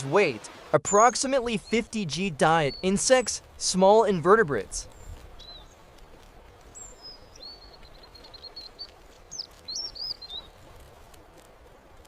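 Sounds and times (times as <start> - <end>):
songbird chirps and whistles: 6.8 - 10.6.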